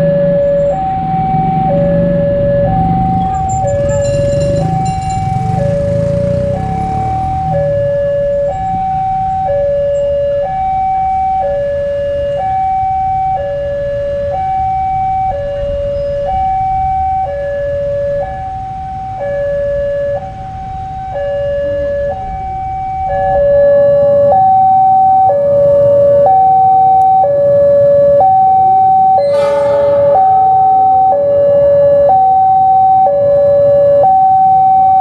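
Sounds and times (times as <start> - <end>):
two-tone crossing alarm: 0.0 - 35.0
low rumble: 29.2 - 31.8.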